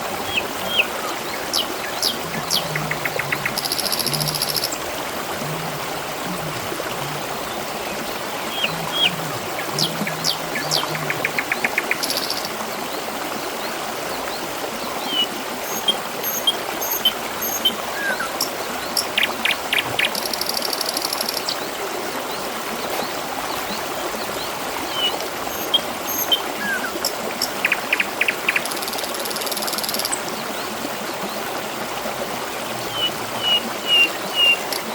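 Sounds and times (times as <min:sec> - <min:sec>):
water trickling and babbling: 0:00.0 - 0:34.9
small birds chirping: 0:00.3 - 0:04.8, 0:08.4 - 0:12.5.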